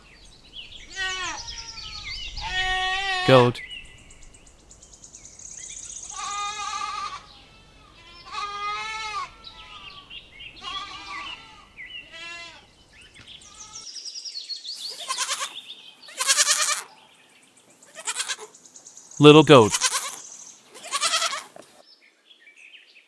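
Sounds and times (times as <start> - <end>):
goat bleating: 15.0 - 15.5, 16.2 - 16.8, 18.0 - 18.4, 19.5 - 20.2, 20.8 - 21.5.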